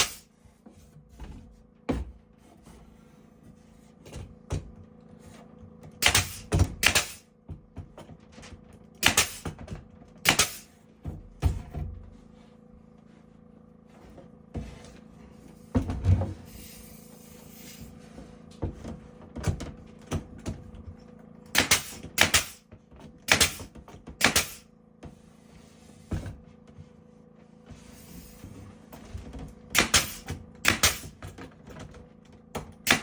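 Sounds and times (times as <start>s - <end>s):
carpentry knocks and clatter: 5.8s - 12.0s, 18.6s - 24.6s, 29.2s - 33.0s.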